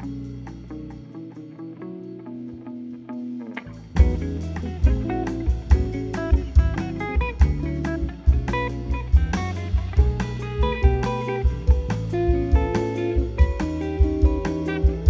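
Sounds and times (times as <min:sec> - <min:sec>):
bass: 0:00.0 - 0:15.0
guitar line: 0:00.0 - 0:15.0
drum kit beat: 0:04.0 - 0:15.0.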